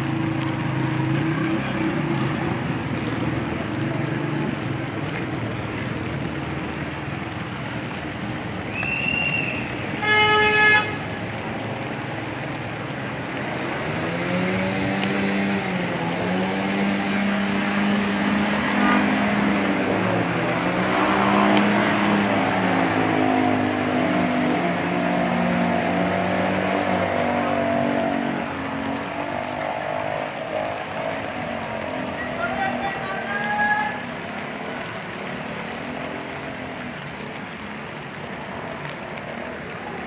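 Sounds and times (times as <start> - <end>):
vehicle engines running: 0.0 - 40.0
vehicle horn toot: 10.0 - 11.0.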